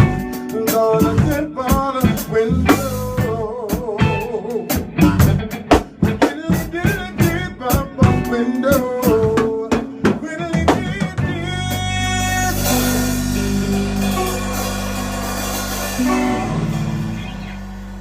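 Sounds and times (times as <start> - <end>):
bending melody line: 0.0 - 18.0
drum kit hits: 0.0 - 18.0
cymbal wash: 12.6 - 18.0.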